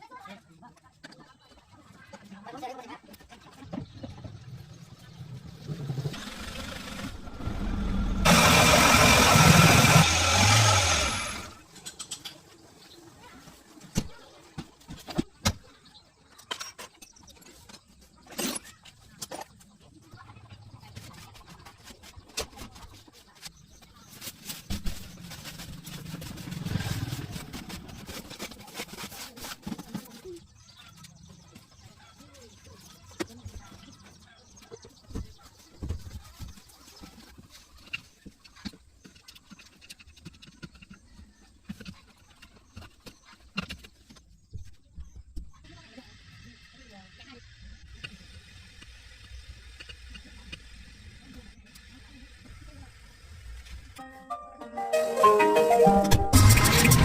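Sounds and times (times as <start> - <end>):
car engine revving: 5.7 - 11.6.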